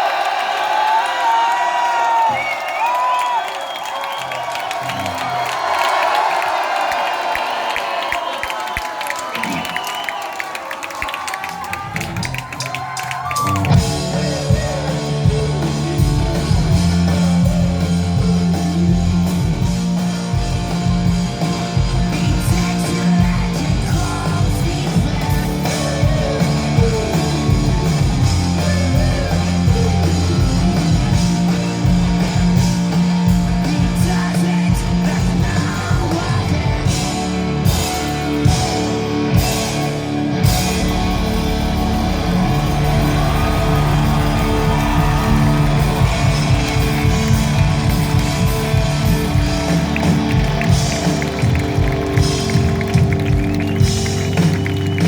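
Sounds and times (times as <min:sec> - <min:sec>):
drums: 0:00.0 - 0:55.0
electric guitars: 0:13.3 - 0:55.0
bass guitar: 0:13.4 - 0:55.0.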